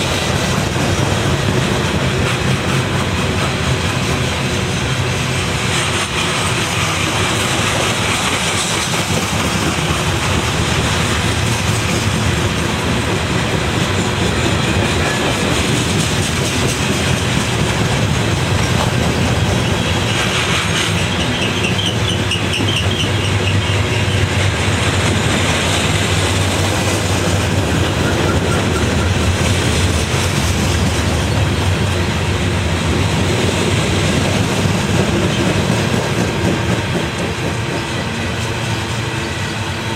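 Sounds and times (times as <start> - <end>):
train rumbling past: 0.0 - 39.9
wheels clacking over rail joints: 0.0 - 39.9
wheel squeal: 19.8 - 24.4, 27.9 - 29.2.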